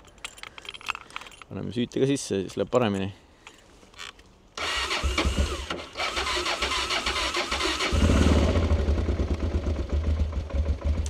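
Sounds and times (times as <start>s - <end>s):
electric starter cranking: 4.6s - 8.5s
motorcycle engine running: 7.9s - 11.0s.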